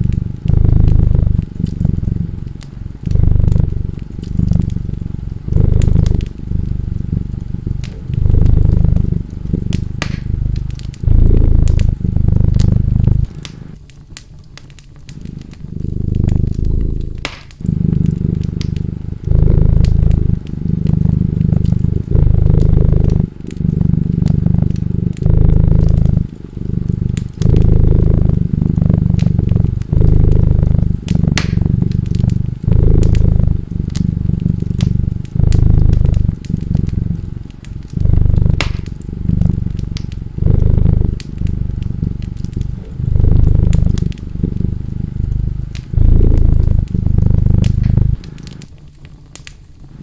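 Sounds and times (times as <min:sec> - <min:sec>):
cat purring: 0:00.0 - 0:50.0
wood fire crackling: 0:00.0 - 0:50.0.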